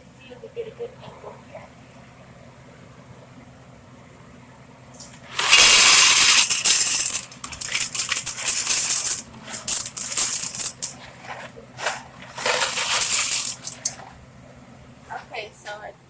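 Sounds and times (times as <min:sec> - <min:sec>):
dry pasta rattling into a pot: 0:05.3 - 0:11.0, 0:11.8 - 0:14.0.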